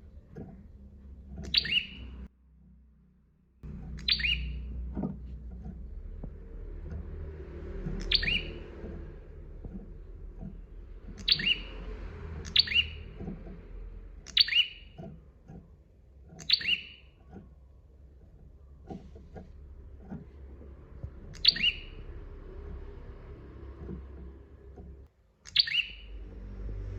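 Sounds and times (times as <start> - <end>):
low steady hum: 0.0 - 25.1
bird sharp call notes: 8.0 - 8.6, 21.4 - 22.0.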